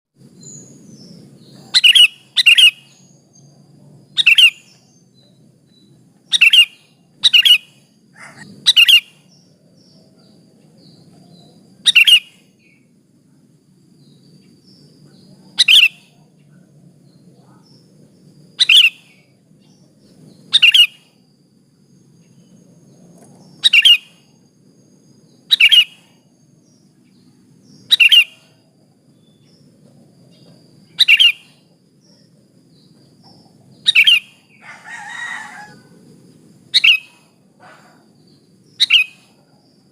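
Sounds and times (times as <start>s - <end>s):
faint low hum: 0.2s - 39.9s
bird giving sharp calls: 1.6s - 3.1s, 4.2s - 4.8s, 6.3s - 9.3s, 11.8s - 12.4s, 15.6s - 16.1s, 18.6s - 19.2s, 20.5s - 21.1s, 23.6s - 24.2s, 25.5s - 26.2s, 27.9s - 28.5s, 30.9s - 31.6s, 33.9s - 36.0s, 36.7s - 38.1s, 38.8s - 39.4s.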